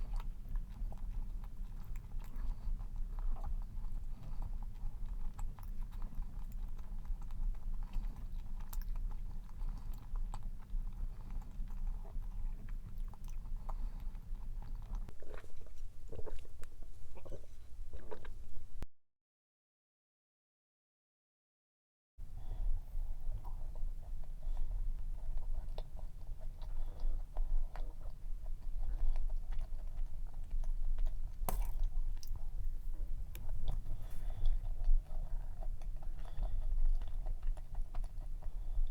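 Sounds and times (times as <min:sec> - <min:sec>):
close-up chewing: 0:00.0 - 0:18.8, 0:22.3 - 0:38.9
steady low hum: 0:00.0 - 0:18.8, 0:22.2 - 0:38.9
wet mouth clicks: 0:31.1 - 0:32.4.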